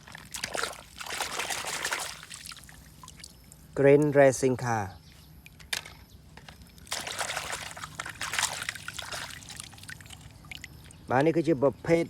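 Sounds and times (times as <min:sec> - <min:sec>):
water splashing and trickling: 0:00.0 - 0:03.7, 0:06.6 - 0:11.3.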